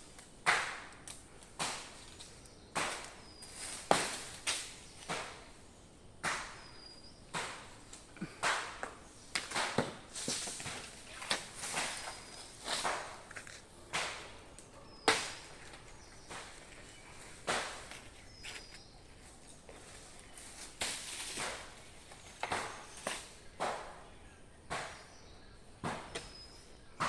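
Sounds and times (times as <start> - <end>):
blade chopping into wood: 17.4 - 18.0, 24.7 - 25.2, 25.8 - 26.5.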